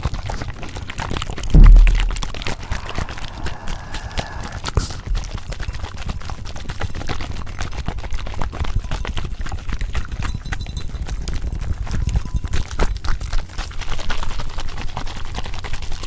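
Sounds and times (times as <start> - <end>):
steady low rumble: 1.5 - 4.6.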